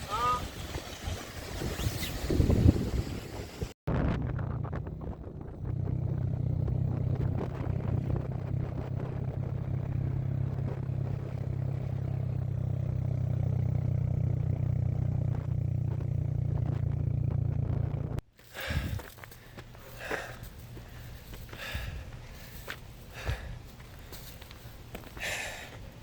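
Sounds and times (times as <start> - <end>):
low engine drone: 3.9 - 18.7.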